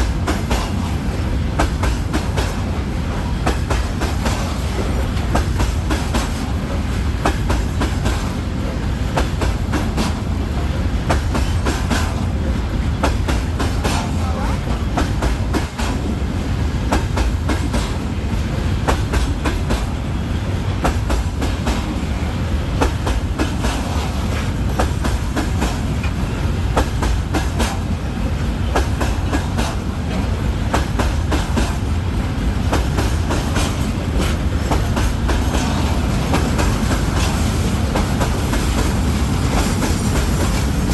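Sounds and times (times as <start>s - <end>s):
train wagons rumbling: 0.0s - 40.9s
wheels clicking over rail joints: 22.7s - 40.9s.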